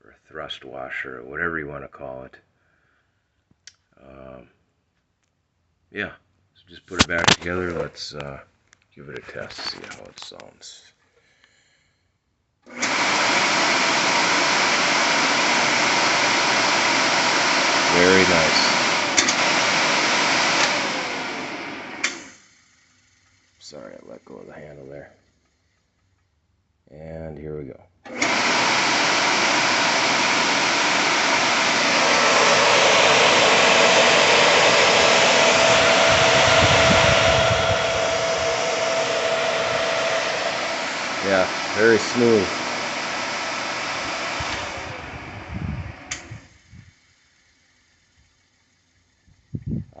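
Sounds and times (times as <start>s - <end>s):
floor scrubber motor running: 12.7s - 23.4s, 28.1s - 46.6s.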